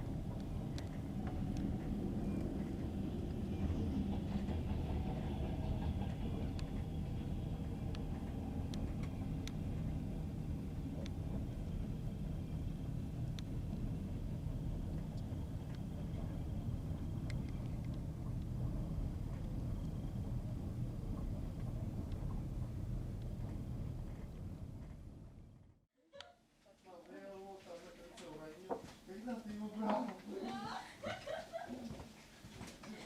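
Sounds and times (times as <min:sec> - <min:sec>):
train wheels rumbling: 0:00.0 - 0:25.8.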